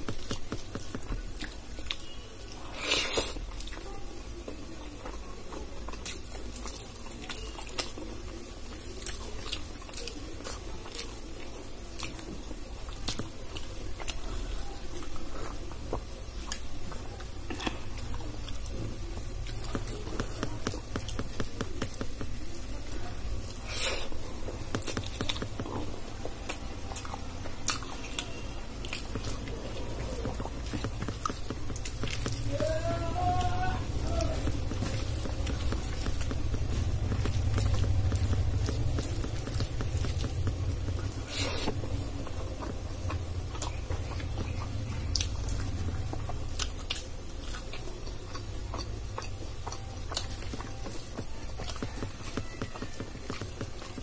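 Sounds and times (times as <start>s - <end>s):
fingers squishing food on a plate: 0.0s - 54.0s
person chewing: 0.0s - 54.0s
wet mouth clicks: 28.9s - 32.7s.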